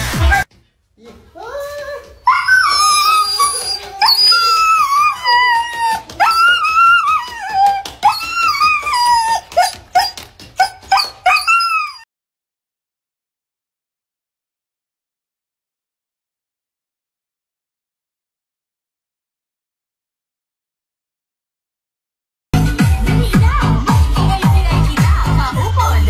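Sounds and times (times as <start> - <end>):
dog howling and whining: 2.2 - 12.1.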